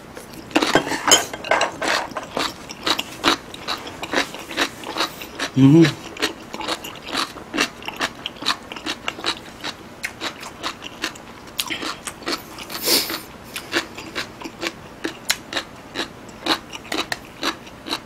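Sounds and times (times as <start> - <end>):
chewing food: 1.8 - 18.0.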